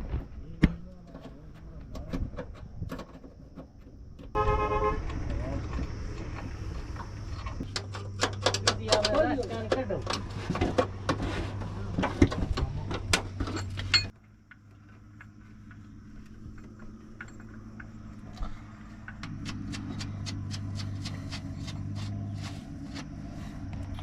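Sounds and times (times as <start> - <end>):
steady low hum: 0.0 - 24.0
metal tools clinking: 12.9 - 14.2, 14.9 - 18.2.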